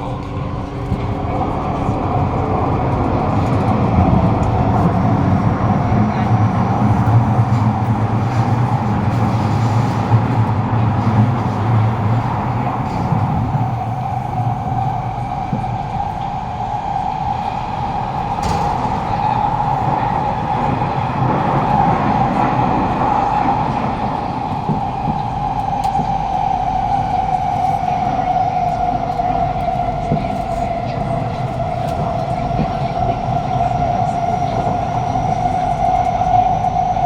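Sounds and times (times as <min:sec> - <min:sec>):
train rumble: 0:00.0 - 0:37.0
mid-pitched drone: 0:10.1 - 0:35.8.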